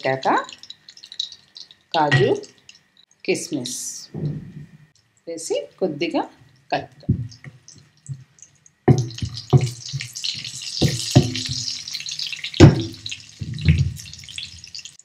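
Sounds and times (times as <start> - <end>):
nuts sizzling in ghee: 0.0 - 4.0, 7.4 - 15.0.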